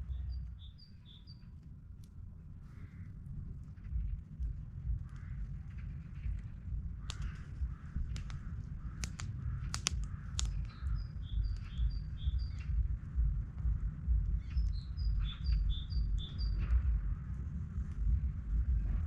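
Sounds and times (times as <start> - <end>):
small bird singing: 0.0 - 1.8, 2.6 - 18.9
steady low rumble: 0.0 - 19.0
sharp clicks: 4.4 - 12.8.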